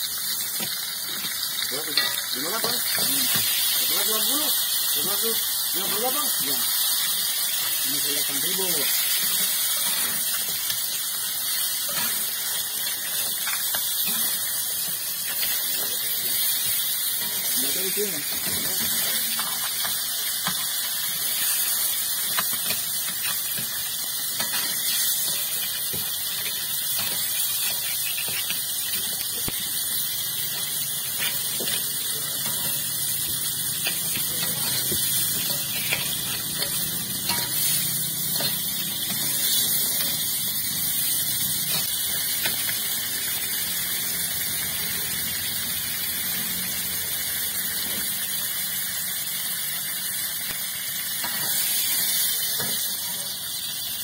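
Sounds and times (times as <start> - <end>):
food sizzling in a wok: 0.0 - 54.0
spatula scraping a pan: 18.2 - 40.3.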